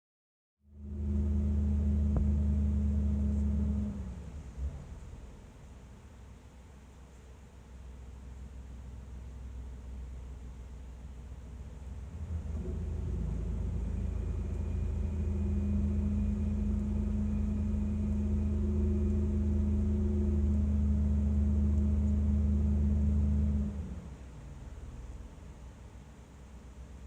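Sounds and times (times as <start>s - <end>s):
car engine running: 0.8s - 5.8s, 11.3s - 26.0s.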